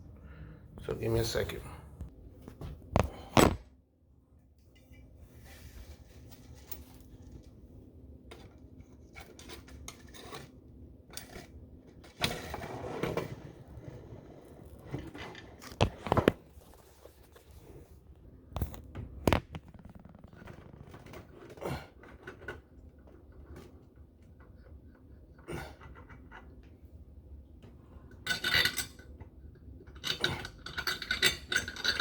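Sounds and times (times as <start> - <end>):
rustling and scraping of tools: 4.7 - 7.6, 8.3 - 20.8
sharp clicks or knocks: 18.6 - 20.9.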